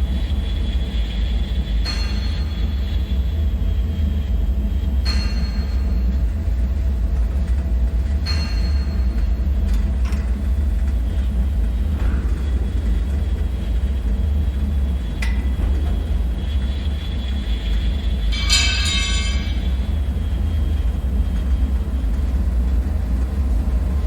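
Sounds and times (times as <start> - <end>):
deep low rumble: 9.1 - 24.0
high-pitched pings: 18.4 - 19.9.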